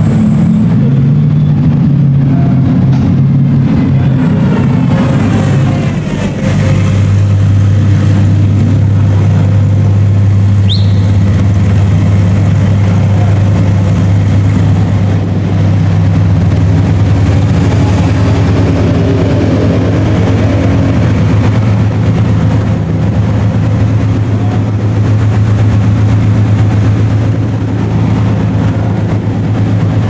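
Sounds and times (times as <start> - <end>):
racing car engines droning: 0.0 - 30.0
short high rising chirp: 10.6 - 11.2.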